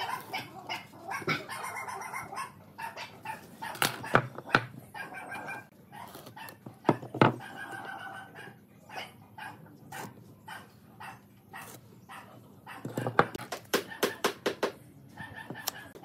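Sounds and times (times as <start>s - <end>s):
animal calling: 0.0s - 4.2s
wood blocks knocking on table: 6.9s - 7.4s.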